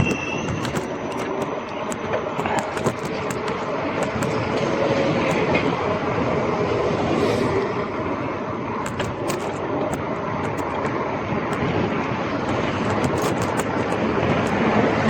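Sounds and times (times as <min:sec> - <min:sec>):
bike rattling clicks: 0:00.0 - 0:04.6, 0:08.8 - 0:15.0
wind: 0:00.0 - 0:15.0.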